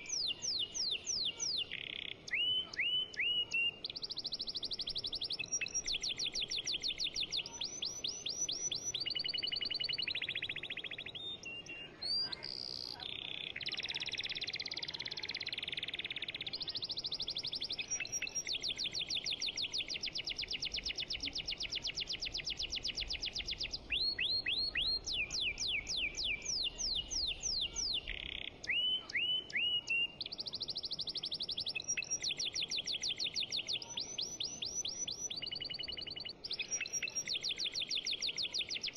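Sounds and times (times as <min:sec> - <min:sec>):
songbirds trilling: 0:00.0 - 0:38.9.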